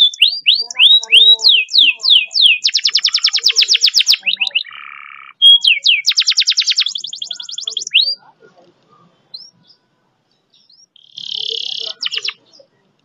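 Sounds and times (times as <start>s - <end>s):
canary singing: 0.0s - 13.0s.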